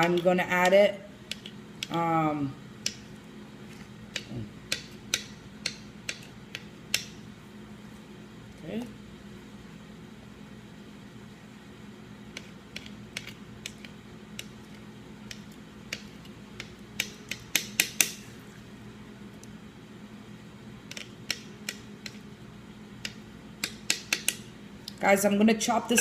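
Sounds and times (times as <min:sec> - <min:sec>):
low steady hum: 0:00.0 - 0:26.0
utensils tapping against bowl: 0:23.0 - 0:24.4.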